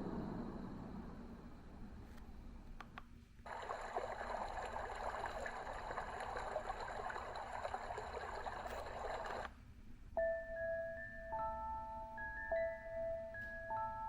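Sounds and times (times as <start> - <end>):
trickling stream through speaker: 3.4 - 9.5.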